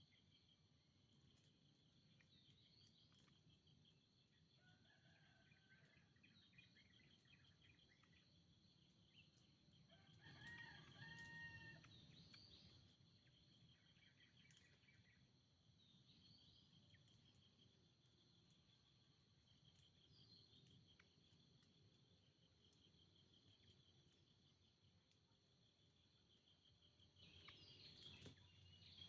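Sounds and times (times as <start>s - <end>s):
small birds chirping: 0.0s - 5.4s, 11.2s - 29.0s.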